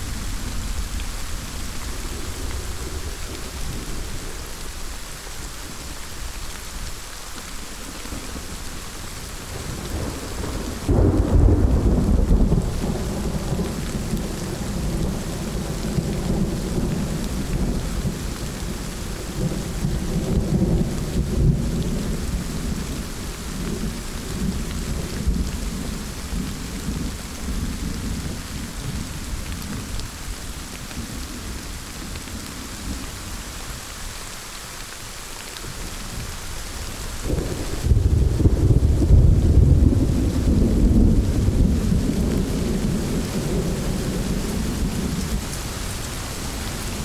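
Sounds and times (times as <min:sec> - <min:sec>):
steady rain: 0:00.0 - 0:47.0
rolling thunder: 0:09.3 - 0:30.0, 0:37.1 - 0:47.0.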